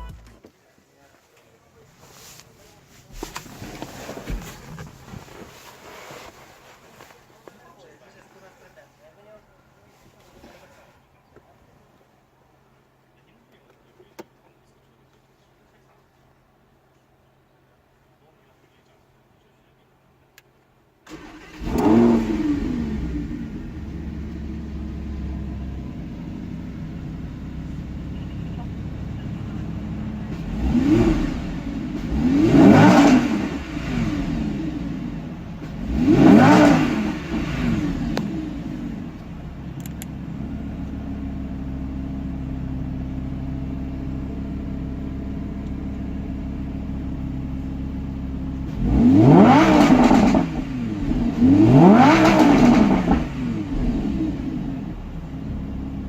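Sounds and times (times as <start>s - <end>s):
car engine starting and idling: 0.0s - 0.5s, 1.4s - 8.8s, 21.0s - 56.0s
engine revving sharply: 21.1s - 25.8s, 30.2s - 39.2s, 48.7s - 55.1s.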